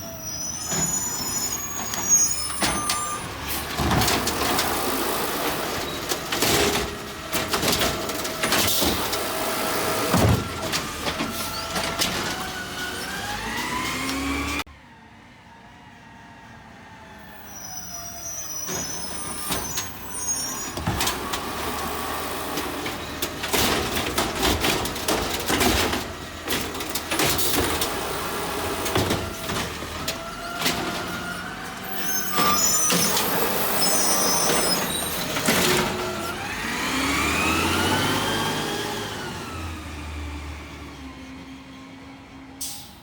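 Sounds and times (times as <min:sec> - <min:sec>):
high metal squeals: 0:00.0 - 0:06.8, 0:11.2 - 0:14.6, 0:17.3 - 0:27.7, 0:28.6 - 0:36.4
truck engine revving: 0:00.1 - 0:14.7, 0:18.2 - 0:41.3
metal clanks and knocks: 0:20.7 - 0:28.0.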